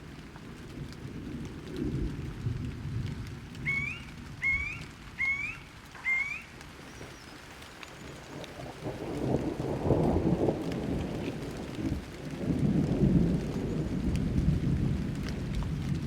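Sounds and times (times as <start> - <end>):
rain: 0.0 - 16.0
thunder rumbling: 0.0 - 16.0
bird calling rising notes: 3.6 - 7.5.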